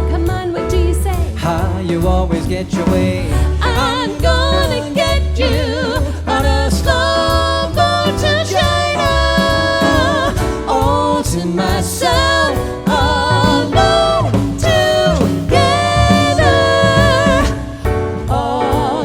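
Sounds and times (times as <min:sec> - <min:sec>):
drums: 0:00.0 - 0:19.0
jazz vocal singing: 0:00.0 - 0:19.0
piano: 0:00.0 - 0:19.0
upright bass: 0:00.0 - 0:19.0.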